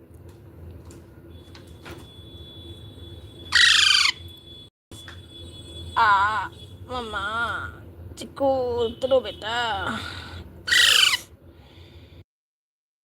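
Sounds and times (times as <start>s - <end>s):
parrot screeching: 3.5s - 4.2s, 10.7s - 11.2s.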